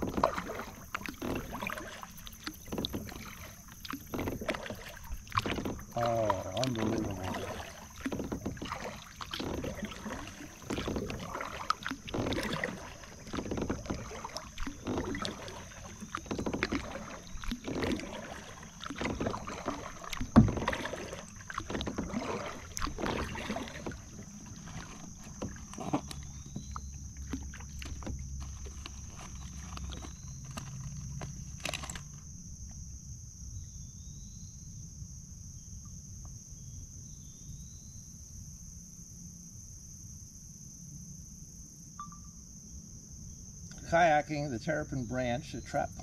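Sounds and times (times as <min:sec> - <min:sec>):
kayak paddle splashing: 0:00.0 - 0:32.8, 0:43.7 - 0:46.0.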